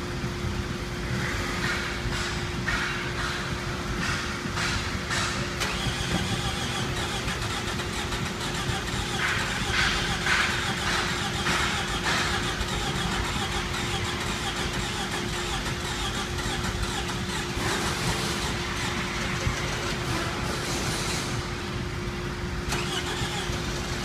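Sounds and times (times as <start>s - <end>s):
car engine running with whine: 0.0s - 24.0s.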